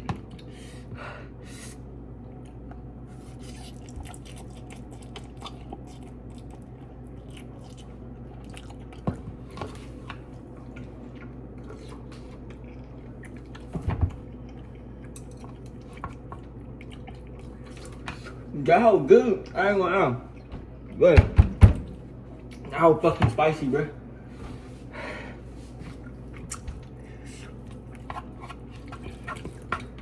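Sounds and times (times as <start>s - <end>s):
steady low hum: 0.0s - 30.0s
person chewing noodles: 1.5s - 18.5s, 25.9s - 30.0s.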